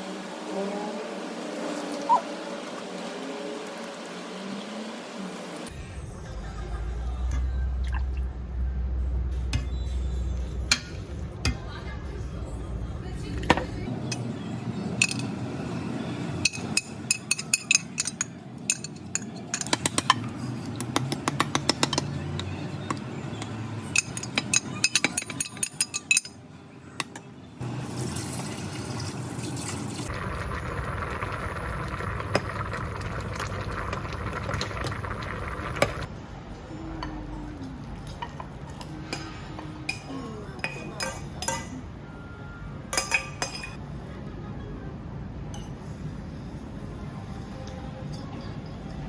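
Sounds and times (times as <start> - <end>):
dishes and glassware clinking: 16.4 - 20.3, 23.4 - 26.4, 38.0 - 41.8, 42.9 - 43.8, 45.5 - 45.9.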